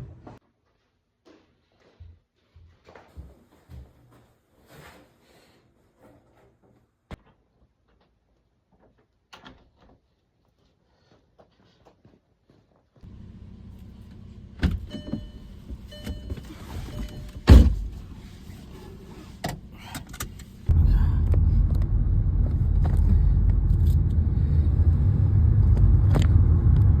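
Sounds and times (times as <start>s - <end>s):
loud low rumbling drone: 20.6s - 27.0s.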